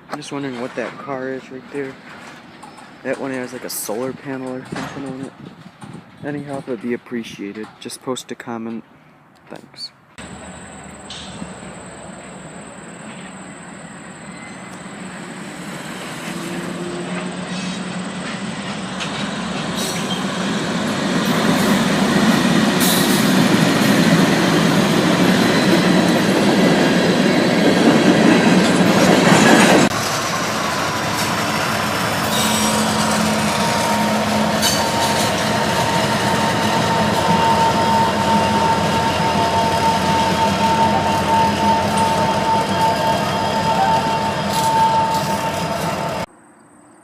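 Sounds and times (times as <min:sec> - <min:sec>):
train wheel squeal: 0:10.2 - 0:20.6, 0:25.2 - 0:46.3
freight train rolling past: 0:10.2 - 0:46.3.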